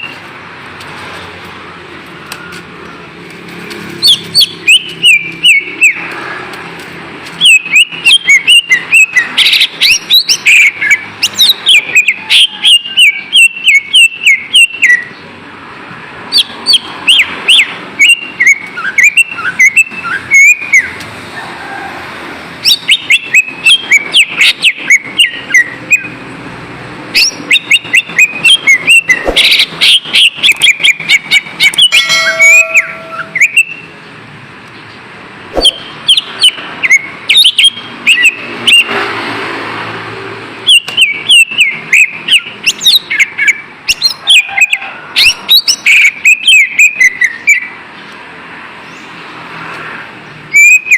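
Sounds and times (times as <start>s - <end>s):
bird chirping and whistling: 4.0s - 6.1s, 7.4s - 15.2s, 16.3s - 21.0s, 22.6s - 26.2s, 27.2s - 34.0s, 35.6s - 38.9s, 40.7s - 47.8s, 50.5s - 50.9s.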